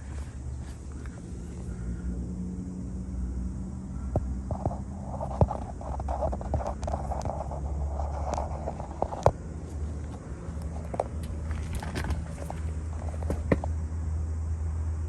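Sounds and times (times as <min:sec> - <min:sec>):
truck engine idling: 0:00.0 - 0:14.5
sharp clicks and knocks: 0:04.1 - 0:13.7.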